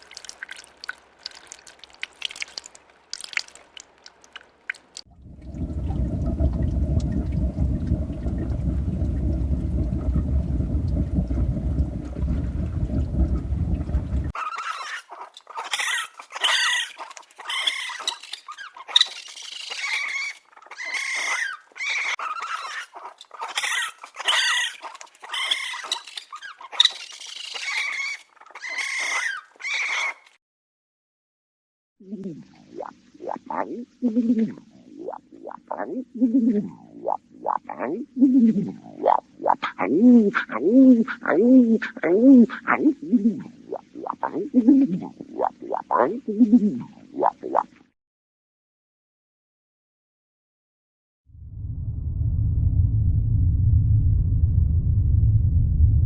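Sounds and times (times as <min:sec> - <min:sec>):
low rumbling noise: 0:05.1 - 0:14.3, 0:51.3 - 0:56.0.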